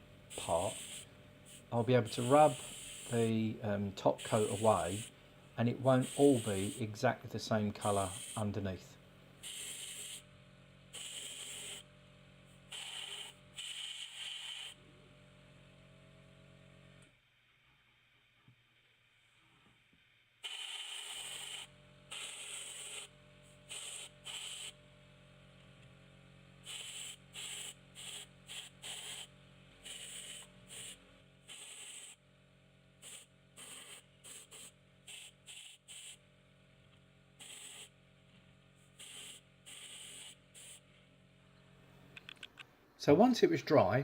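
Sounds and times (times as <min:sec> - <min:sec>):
airbrush hissing bursts: 0:00.3 - 0:05.1, 0:05.8 - 0:07.0, 0:07.8 - 0:08.6, 0:09.4 - 0:10.3, 0:10.9 - 0:11.8, 0:12.7 - 0:14.8, 0:20.4 - 0:23.1, 0:23.7 - 0:24.8, 0:26.6 - 0:32.2, 0:33.0 - 0:36.2, 0:37.4 - 0:38.0, 0:38.9 - 0:40.9.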